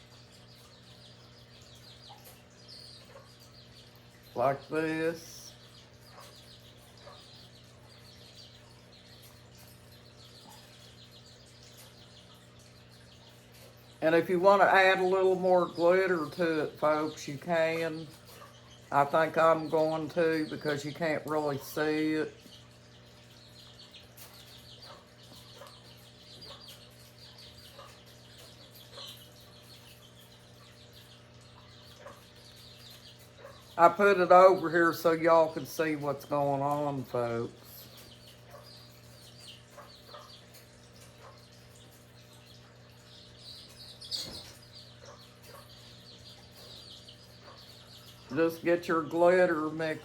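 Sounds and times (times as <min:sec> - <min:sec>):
chickens clucking: 0:00.0 - 0:50.0
rapid high chirping: 0:43.2 - 0:50.0.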